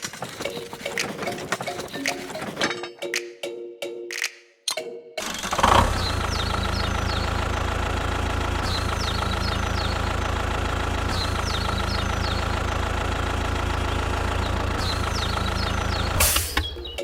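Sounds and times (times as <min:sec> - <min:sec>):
engine idling: 0:05.2 - 0:17.0.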